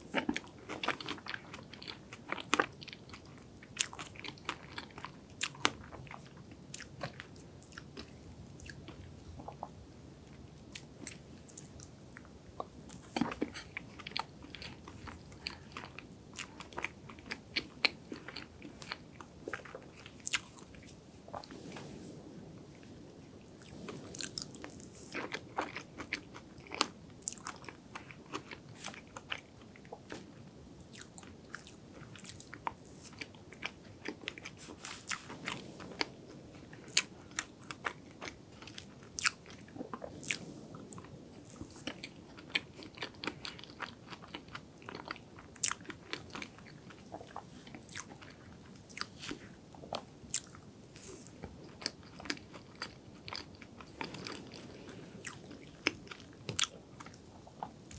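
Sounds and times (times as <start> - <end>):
wet mouth chewing clicks: 23.6 - 30.2.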